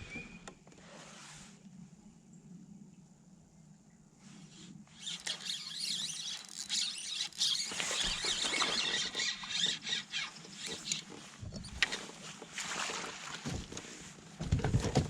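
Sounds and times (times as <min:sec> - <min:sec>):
fishing reel drag squealing: 0:04.9 - 0:11.8.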